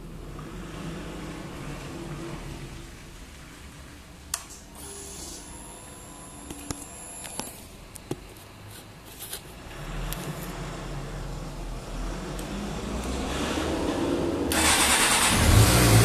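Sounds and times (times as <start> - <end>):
high steady whine: 4.8 - 8.2.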